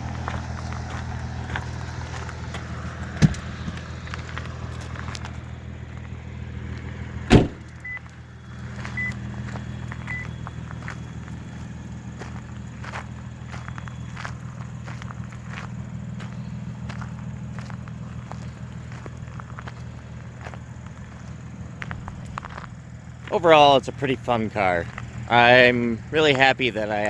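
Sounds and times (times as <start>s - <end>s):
car engine idling: 0.0s - 27.0s
loud thump: 3.2s - 3.4s, 7.3s - 7.7s.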